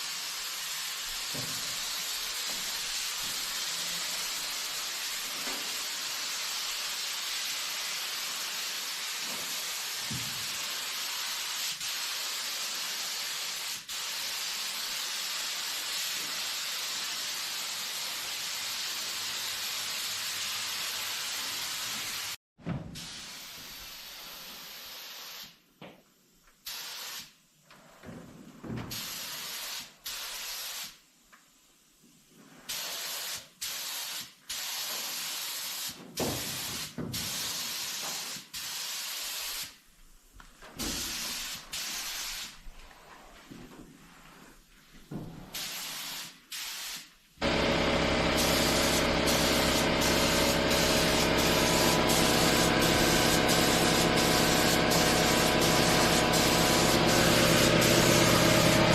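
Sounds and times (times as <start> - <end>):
spray gun hissing: 0.0 - 22.4, 32.7 - 39.8, 40.8 - 42.6, 45.5 - 58.9
mechanical hum: 47.4 - 58.9.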